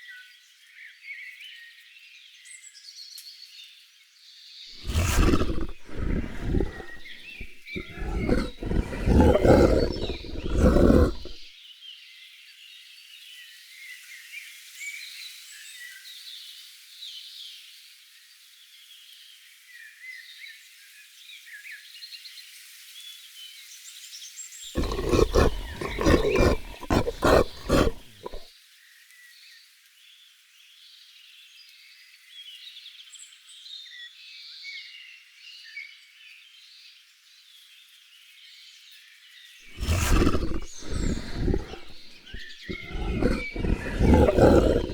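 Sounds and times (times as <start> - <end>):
birds chirping faintly: 4.8 - 11.4, 24.8 - 28.4, 39.8 - 44.9
big cat roaring: 4.8 - 11.5, 24.8 - 28.4, 39.8 - 44.9.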